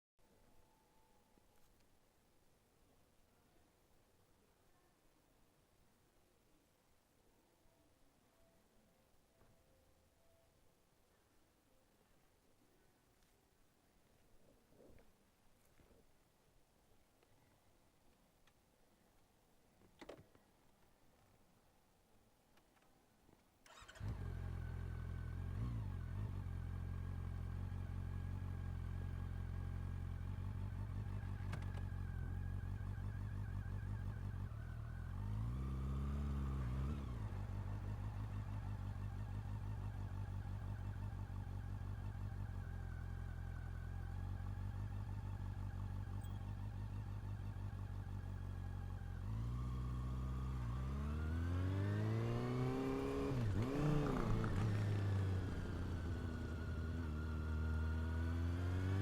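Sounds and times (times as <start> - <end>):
motorcycle engine idling and revving: 23.7 - 59.0.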